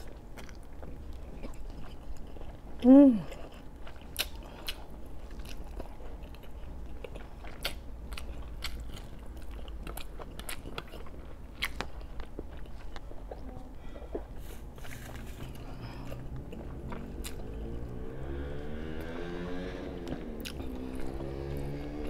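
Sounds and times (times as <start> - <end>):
wet chewing mouth clicks: 20.0 - 21.2.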